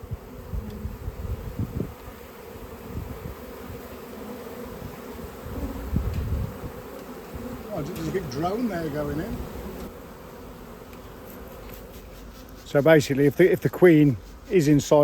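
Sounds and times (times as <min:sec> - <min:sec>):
bee swarm buzzing: 0:00.0 - 0:15.0.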